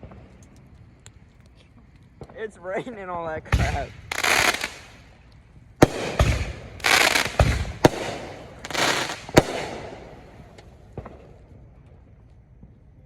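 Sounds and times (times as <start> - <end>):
sharp firework bangs: 3.5 - 5.2, 5.8 - 11.4
crackling aerial bursts: 3.6 - 11.2
firework launch thumps: 5.8 - 11.3.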